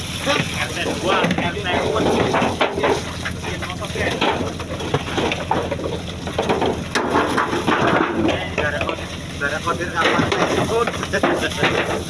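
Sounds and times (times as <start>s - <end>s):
boat engine running: 0.0s - 12.0s
indistinct voices: 0.0s - 12.0s.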